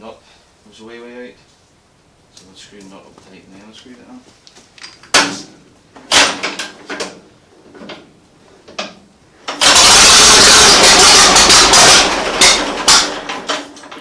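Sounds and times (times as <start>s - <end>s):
tractor engine firing and running: 6.0s - 7.2s, 9.4s - 14.0s
engine knocks: 9.5s - 14.0s.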